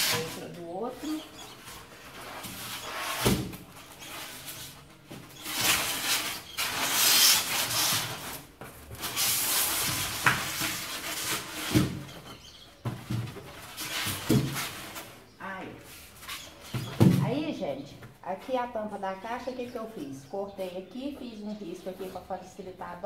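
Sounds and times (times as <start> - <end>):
styrofoam and cardboard rubbing: 0.0 - 12.4.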